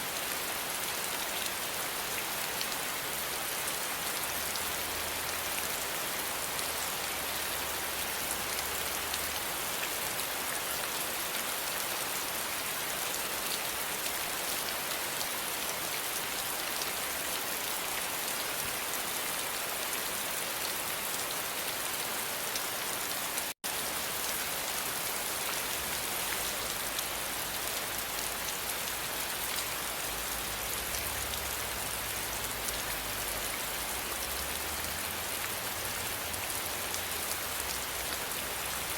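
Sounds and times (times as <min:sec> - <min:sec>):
steady rainfall: 0:00.0 - 0:38.9.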